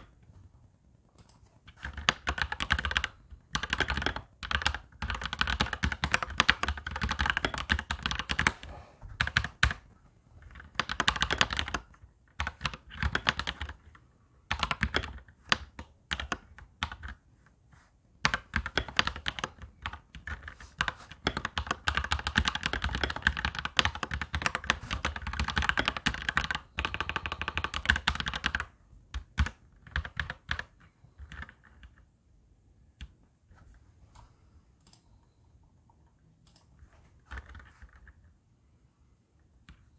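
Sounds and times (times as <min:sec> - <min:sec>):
mechanical keyboard typing: 0:01.2 - 0:17.2, 0:18.2 - 0:32.1, 0:37.3 - 0:38.2.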